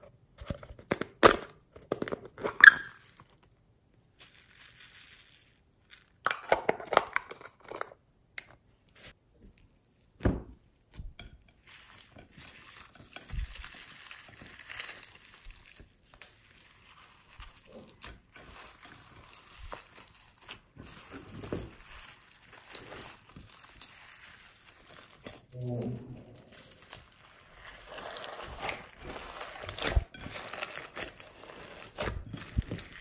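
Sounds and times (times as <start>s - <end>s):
slime crackling and popping: 12.4s - 33.0s.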